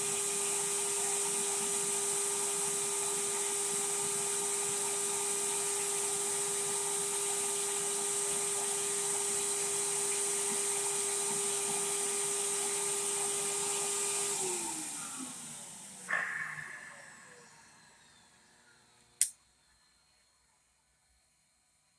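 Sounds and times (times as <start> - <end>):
vacuum motor whining: 0.0 - 19.3.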